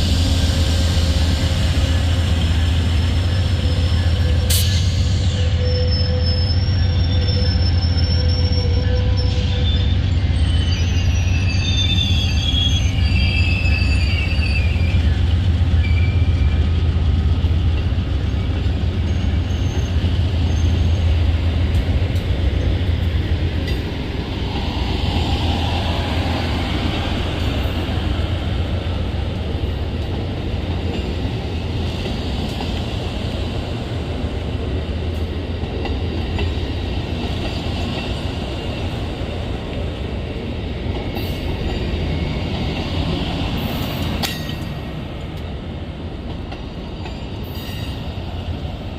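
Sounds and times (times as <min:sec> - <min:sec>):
train rumbling on rails: 0:00.0 - 0:48.9
high wheel squeal: 0:03.4 - 0:16.6.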